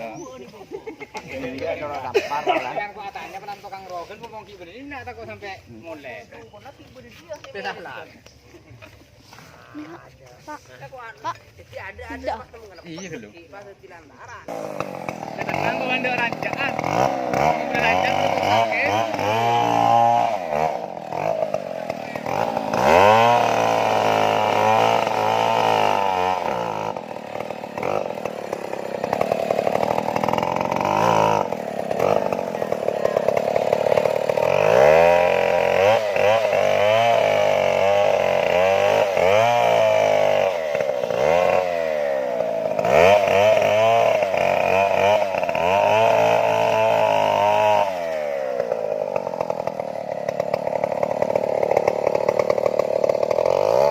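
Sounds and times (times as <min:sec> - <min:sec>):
chainsaw cutting tree trunk: 0:00.0 - 0:08.4, 0:14.5 - 0:53.9.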